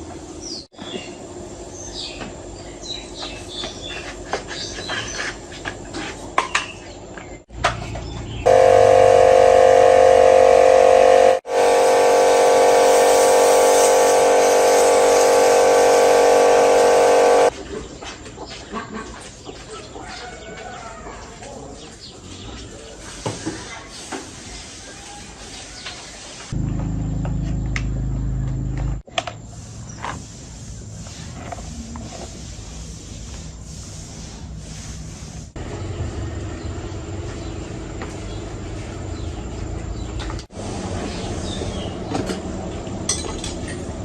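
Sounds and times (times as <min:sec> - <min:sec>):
air sprayer running with hiss: 0:08.5 - 0:17.5
faint hum: 0:08.5 - 0:17.5.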